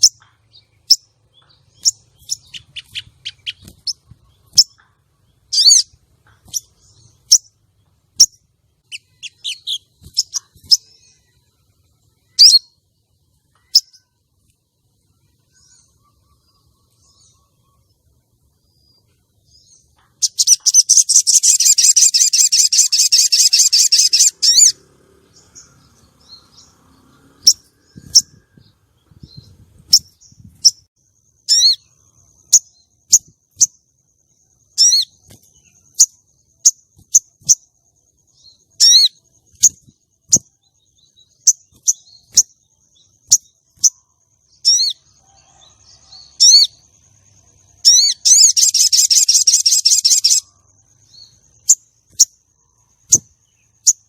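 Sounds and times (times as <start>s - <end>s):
bird sharp chirps: 0.0s - 54.0s
bird trilling chatter: 1.8s - 6.7s, 8.9s - 11.0s, 20.2s - 24.8s, 47.8s - 50.6s.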